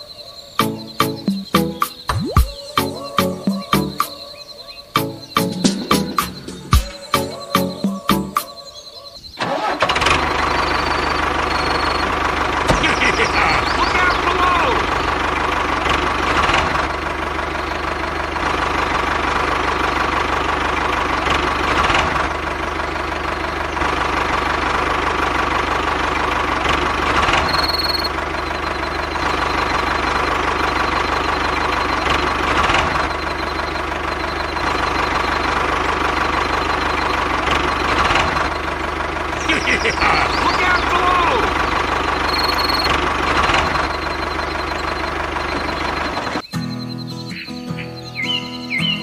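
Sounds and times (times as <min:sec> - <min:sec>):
engine running with knocking beat: 0:00.6 - 0:04.2, 0:05.0 - 0:08.6, 0:10.2 - 0:46.8
short high beep: 0:42.2 - 0:42.9.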